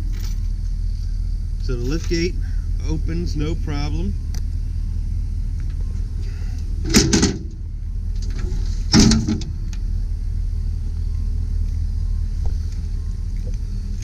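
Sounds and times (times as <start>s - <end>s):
low rumble: 0.0s - 14.0s
liftgate metal clunks: 6.8s - 7.6s, 8.2s - 9.6s.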